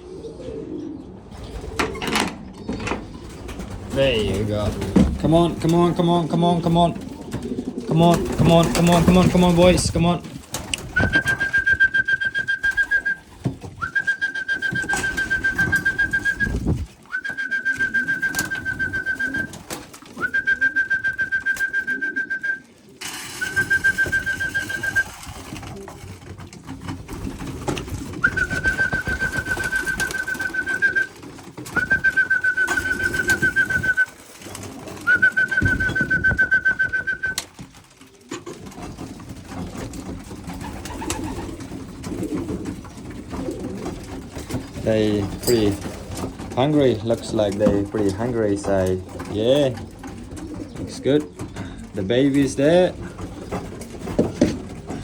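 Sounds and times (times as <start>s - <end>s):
pigeons cooing: 0.0s - 55.0s
trilling whistle notes: 11.0s - 13.2s, 13.8s - 19.6s, 23.4s - 25.2s, 28.2s - 31.1s, 31.8s - 34.1s, 35.1s - 37.4s.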